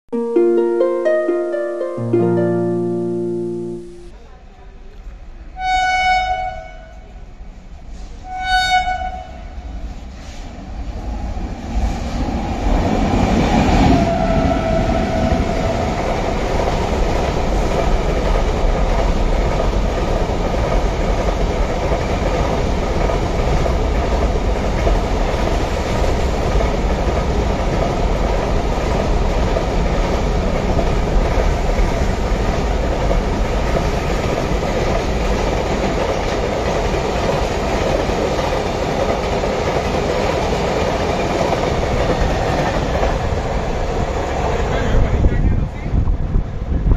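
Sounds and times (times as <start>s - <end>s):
locomotive horn blasts: 5.6s - 7.0s, 8.3s - 9.4s
train wheels rumbling on rail: 6.3s - 46.9s.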